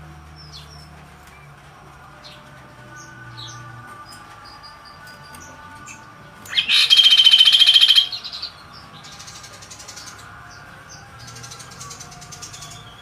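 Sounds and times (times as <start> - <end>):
bird rattling trill: 6.5 - 8.5.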